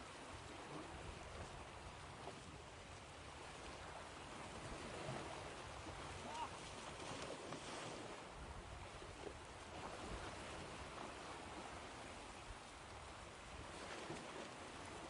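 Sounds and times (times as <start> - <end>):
ocean waves washing ashore: 0.0 - 15.0.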